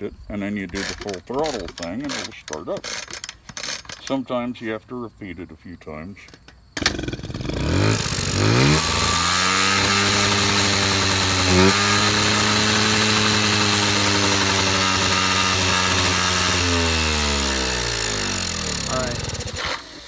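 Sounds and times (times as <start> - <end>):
moped engine revving: 6.8 - 20.0.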